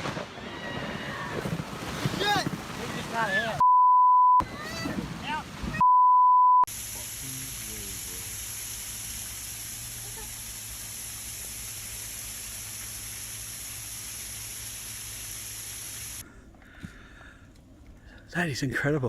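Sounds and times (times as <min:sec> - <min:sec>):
steady hiss: 0:06.7 - 0:16.2.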